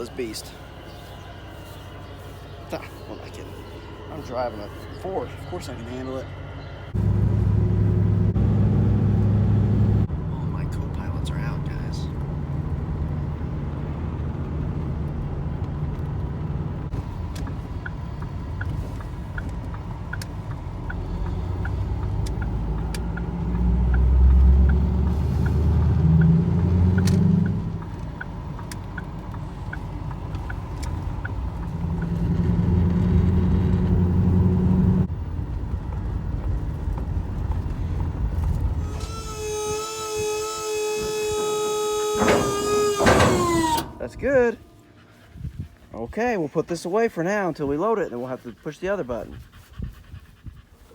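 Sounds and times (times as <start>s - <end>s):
diesel engine pulling a trailer: 0.0s - 49.9s
turn signal ticking: 12.1s - 34.2s.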